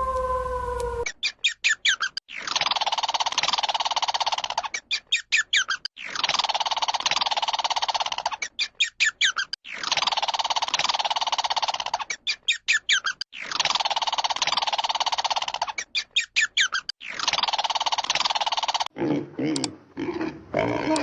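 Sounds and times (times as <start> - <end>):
bird singing chirps and trills: 0.6 - 3.6, 4.6 - 6.2, 8.2 - 10.0, 11.9 - 13.6, 15.6 - 17.3.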